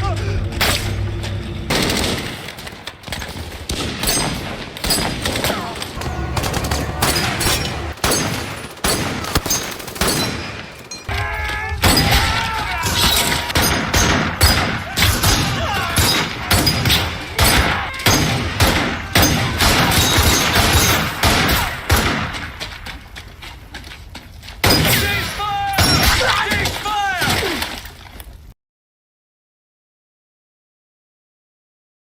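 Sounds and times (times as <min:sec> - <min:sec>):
overlapping gunfire: 0:01.7 - 0:22.8.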